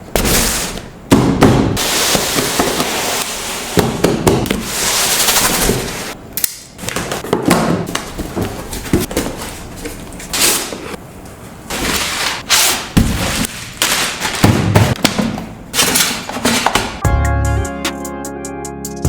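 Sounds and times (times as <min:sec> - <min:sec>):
plastic and cardboard crinkling: 0:11.7 - 0:15.2.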